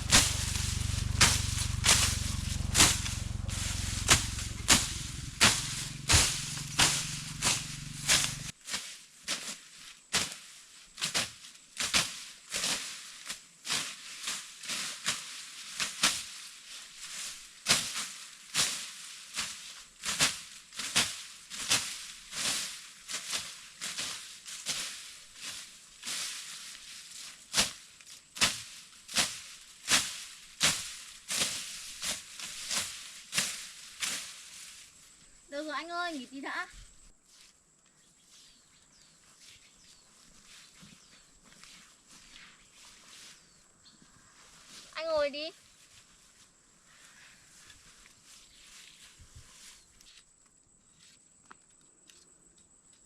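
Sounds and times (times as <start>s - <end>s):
hand tool cutting plant stems: 0.0s - 8.6s, 28.4s - 34.3s.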